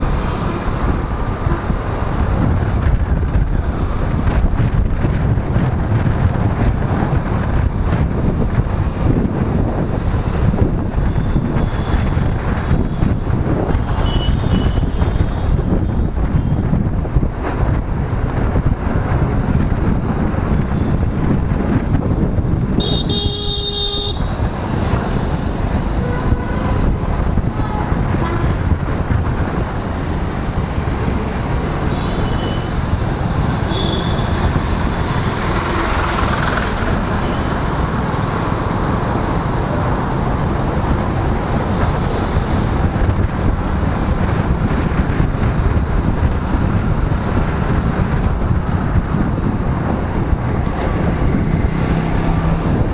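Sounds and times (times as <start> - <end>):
wind and road noise: 0.0 - 52.9
vehicle horn honking: 14.0 - 14.9, 22.8 - 24.3, 26.0 - 27.0, 33.7 - 34.2.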